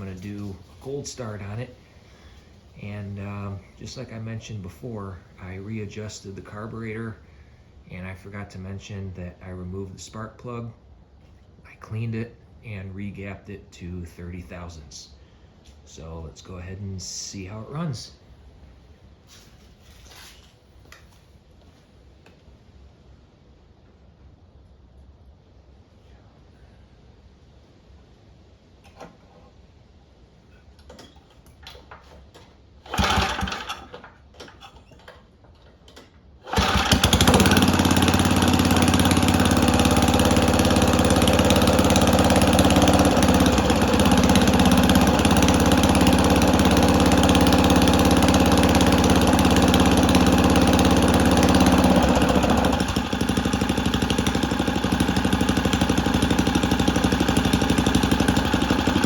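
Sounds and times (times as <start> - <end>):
small engine running: 0.0 - 7.0, 32.8 - 34.1, 36.4 - 59.0
pull rope starter: 0.0 - 7.1, 30.5 - 59.0.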